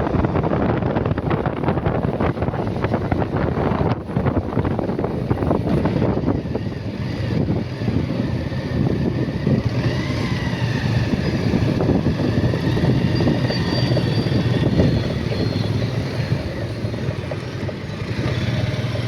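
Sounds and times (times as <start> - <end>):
motorcycle engine running: 0.0 - 19.0
wind rush on microphone: 0.0 - 19.0.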